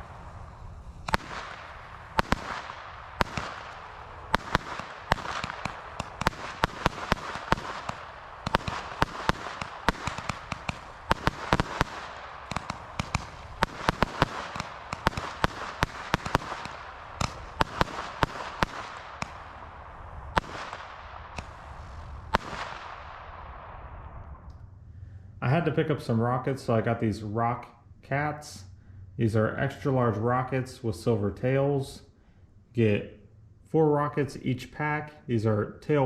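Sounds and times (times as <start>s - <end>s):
hiss of burning fireworks: 0.0s - 19.7s, 20.3s - 22.9s.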